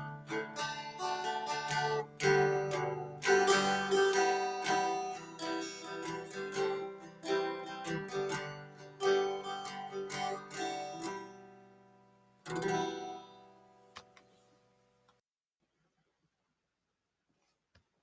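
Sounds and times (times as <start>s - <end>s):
acoustic guitar strummed chords: 0.0s - 14.0s.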